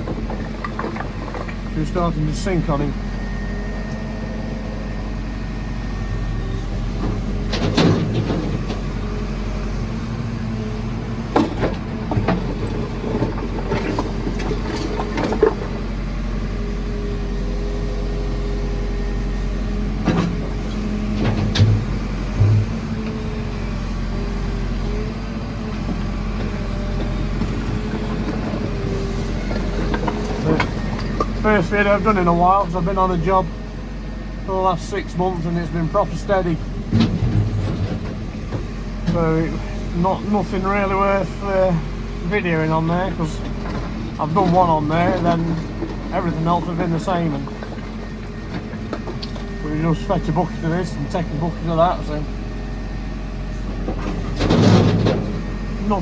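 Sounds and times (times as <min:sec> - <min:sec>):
bucket clanking on rubble: 0:00.0 - 0:01.8, 0:07.5 - 0:08.9, 0:11.3 - 0:15.9, 0:20.0 - 0:23.2, 0:36.8 - 0:39.9, 0:53.7 - 0:56.0
diesel backhoe engine running: 0:00.0 - 0:56.0.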